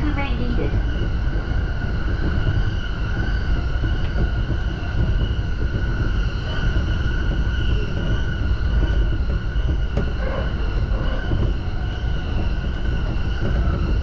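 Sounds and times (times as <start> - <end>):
train high-pitched whine: 0.0 - 14.0
train wheels rumbling on rails: 0.0 - 14.0.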